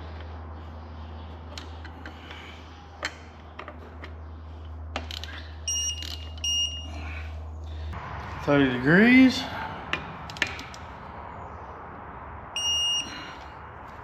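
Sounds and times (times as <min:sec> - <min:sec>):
steady low hum: 0:00.0 - 0:14.0
torque wrench beeps: 0:05.6 - 0:06.9, 0:12.6 - 0:13.3.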